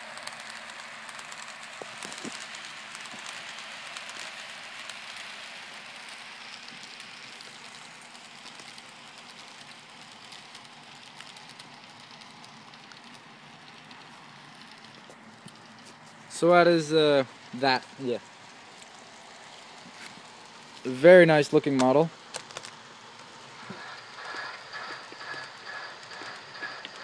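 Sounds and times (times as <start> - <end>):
model train motor hiss: 0.0 - 14.9, 23.2 - 27.0.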